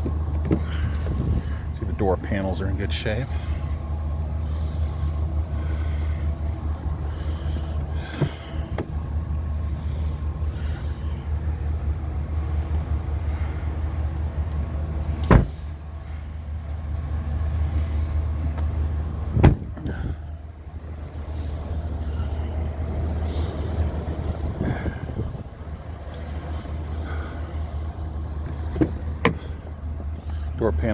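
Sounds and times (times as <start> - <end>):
truck doors thumping shut: 0.0 - 1.4, 7.8 - 9.1, 15.1 - 15.8, 19.3 - 20.2, 28.4 - 29.8
truck engine idling: 0.0 - 30.9.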